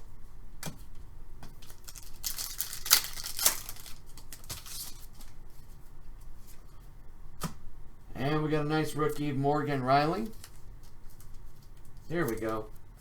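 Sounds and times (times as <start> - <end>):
wrapper crinkling and tearing: 1.6 - 5.4.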